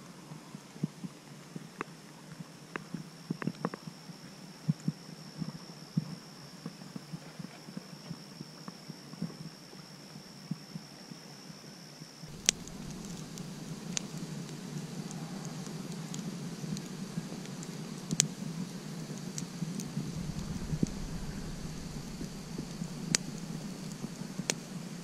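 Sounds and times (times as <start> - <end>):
campfire crackling and popping: 12.3 - 25.0
steady high-pitched tone: 12.3 - 25.0
steady low rush: 12.3 - 25.0.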